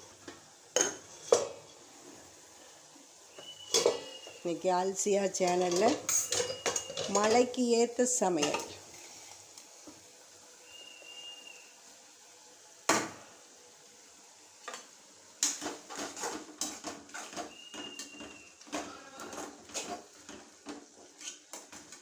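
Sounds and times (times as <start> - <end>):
spoon clinking against pot: 3.5 - 4.3, 5.5 - 7.5
metal spoon scraping a pot: 5.4 - 7.6, 15.6 - 20.4, 21.0 - 21.8.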